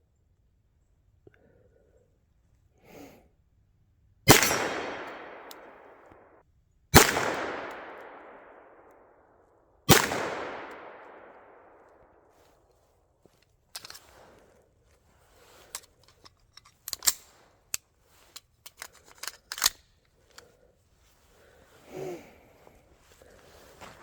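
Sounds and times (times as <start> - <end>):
pistol shots with echo: 4.3 - 6.0, 7.0 - 8.9, 9.9 - 11.8.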